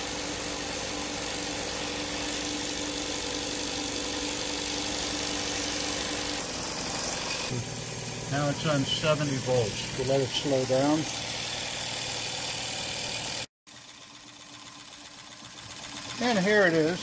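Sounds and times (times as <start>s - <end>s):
steam engine chuffing: 7.5s - 17.0s.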